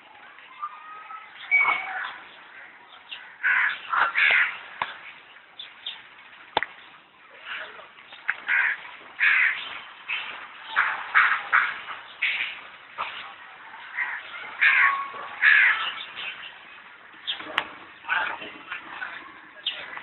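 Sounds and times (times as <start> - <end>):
birds calling: 0.3 - 20.0.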